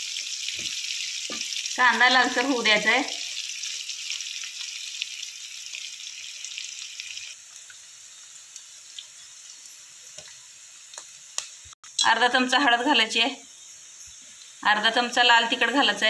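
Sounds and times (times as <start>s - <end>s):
food sizzling in hot oil: 0.0s - 16.0s
small crackles: 5.7s - 11.7s.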